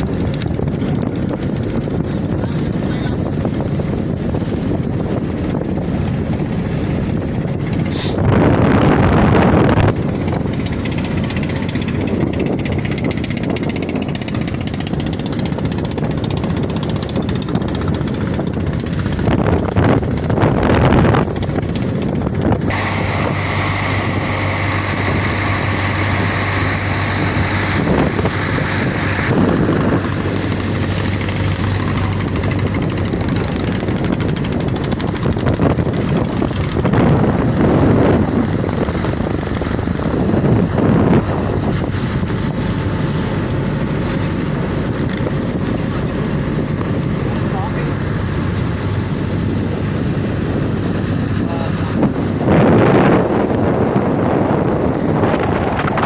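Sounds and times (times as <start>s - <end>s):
wind noise on microphone: 0.0s - 56.0s
motor running: 20.6s - 42.0s.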